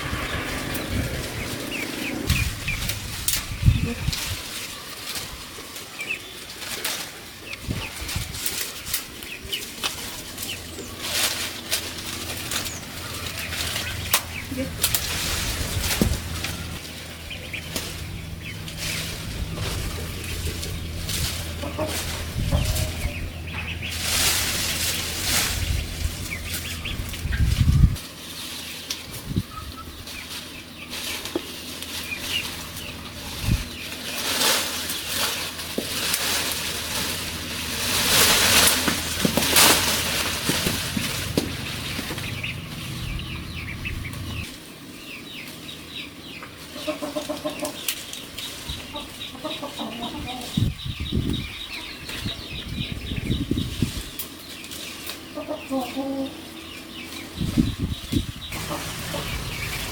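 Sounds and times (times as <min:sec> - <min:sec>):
poultry flapping wings: 0:00.0 - 0:29.4, 0:30.2 - 0:44.5, 0:57.4 - 0:59.9
chickens clucking: 0:00.0 - 0:59.9.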